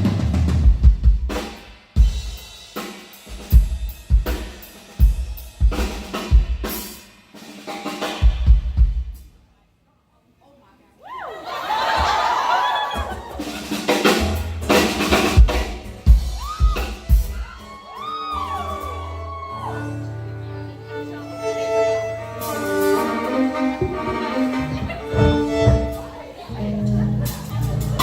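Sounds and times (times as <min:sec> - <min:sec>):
drum kit hits: 0:00.0 - 0:09.2, 0:13.0 - 0:17.5, 0:25.0 - 0:26.2
violin sliding notes: 0:18.5 - 0:26.8
bass guitar low notes: 0:21.9 - 0:28.0.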